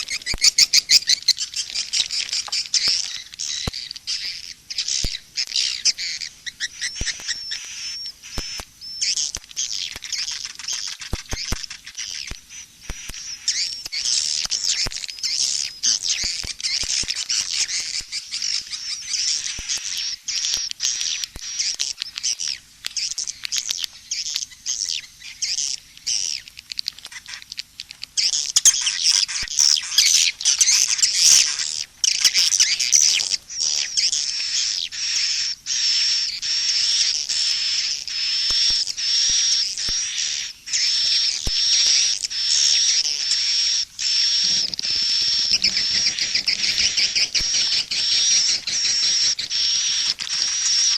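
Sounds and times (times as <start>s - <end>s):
swiftlets twittering: 28.6s - 50.9s.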